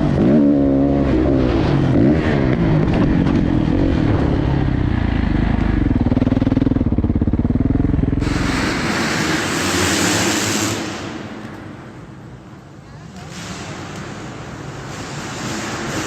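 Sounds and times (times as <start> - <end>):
motocross bike engine revving: 0.0 - 11.4, 13.3 - 16.0
loud steady hiss: 8.1 - 16.0.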